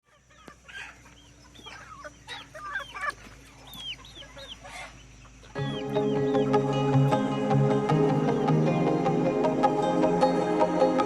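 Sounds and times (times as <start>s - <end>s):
chickens clucking: 0.0s - 11.0s
music with long held tones: 5.5s - 11.0s.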